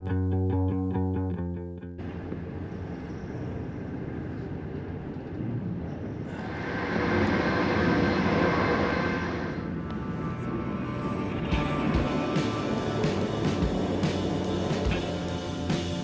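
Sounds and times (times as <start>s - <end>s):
train wheels rumbling on track: 11.6s - 16.0s.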